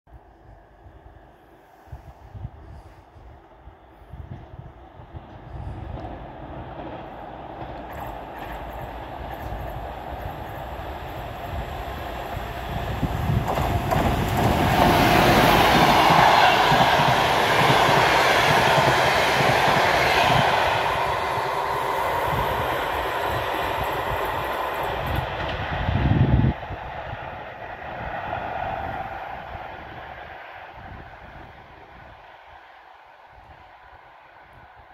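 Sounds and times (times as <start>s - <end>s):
train wheels clattering over rails: 5.2s - 25.7s.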